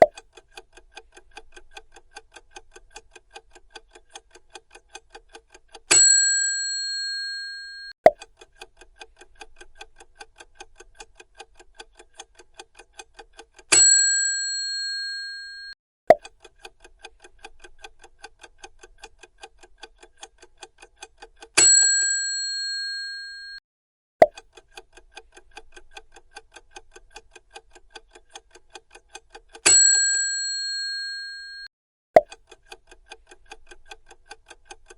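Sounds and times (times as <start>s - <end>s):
rapid clock ticking: 0.0s - 5.9s, 8.1s - 13.7s, 16.1s - 21.6s, 24.3s - 29.6s, 32.3s - 34.9s
loud bell ding: 5.9s - 7.9s, 13.8s - 15.7s, 21.6s - 23.6s, 29.7s - 31.7s.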